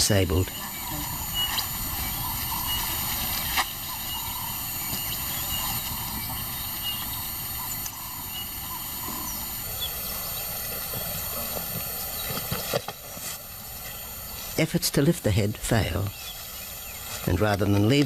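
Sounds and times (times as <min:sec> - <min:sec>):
faint high chirps: 0:00.0 - 0:12.5
outdoor ambience: 0:00.0 - 0:18.0.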